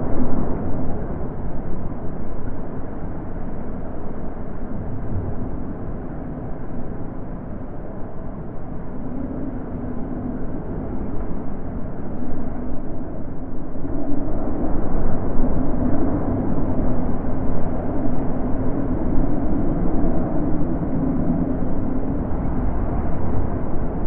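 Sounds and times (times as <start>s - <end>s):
wind gusting: 10.5s - 24.0s.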